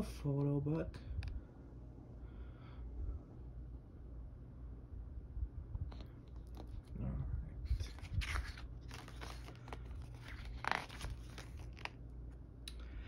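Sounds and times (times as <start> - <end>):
paper rustling and crinkling: 5.9 - 6.9, 7.6 - 12.1.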